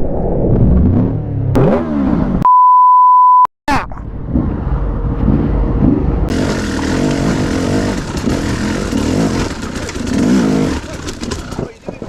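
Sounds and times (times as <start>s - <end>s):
motorcycle engine revving: 1.0s - 2.4s, 4.1s - 12.0s.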